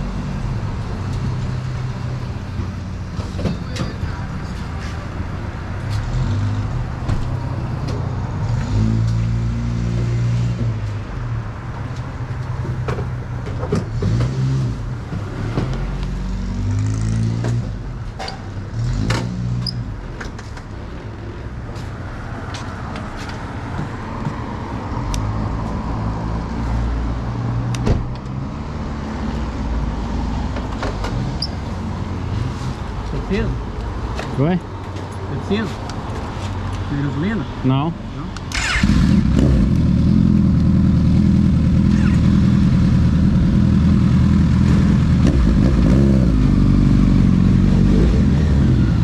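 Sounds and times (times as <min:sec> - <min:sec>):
vehicle engine revving: 0:13.8 - 0:17.8, 0:38.4 - 0:49.0.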